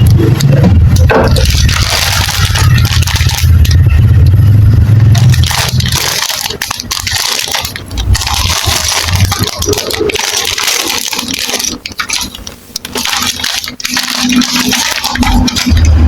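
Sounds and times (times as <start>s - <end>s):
plastic bricks clattering: 0.1s - 3.8s, 5.2s - 16.0s.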